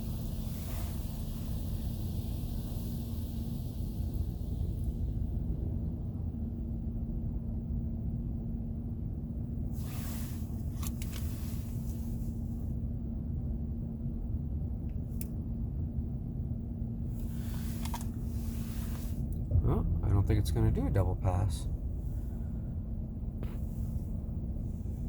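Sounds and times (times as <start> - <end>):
water spray hissing: 0.0 - 5.2
car wash equipment humming: 0.0 - 25.0.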